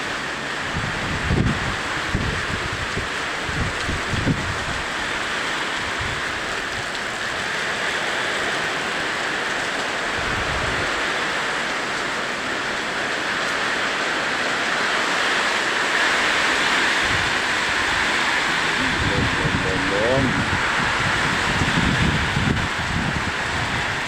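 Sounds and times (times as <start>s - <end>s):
rain pouring: 0.0s - 24.0s
wind gusts buffeting microphone: 0.6s - 7.6s, 10.0s - 11.2s, 14.8s - 24.0s.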